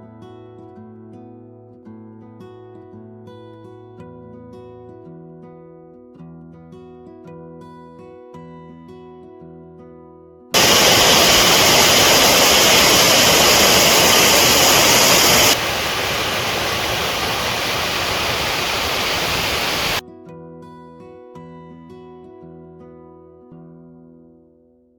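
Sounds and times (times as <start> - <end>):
stream rushing loudly: 10.6 - 20.0.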